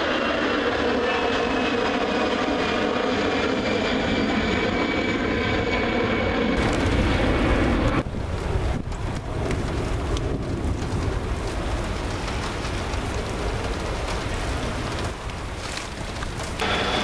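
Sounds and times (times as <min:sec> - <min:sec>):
jet engines rumbling: 0:00.0 - 0:17.0
heavy rain falling: 0:06.6 - 0:17.0
raindrops ticking on microphone: 0:08.0 - 0:16.6.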